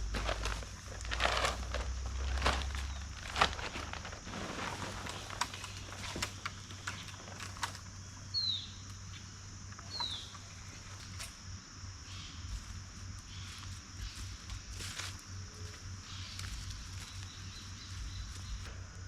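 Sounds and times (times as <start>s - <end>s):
handling clicks and rustles: 0.0s - 8.2s
high-pitched hiss: 0.0s - 19.0s.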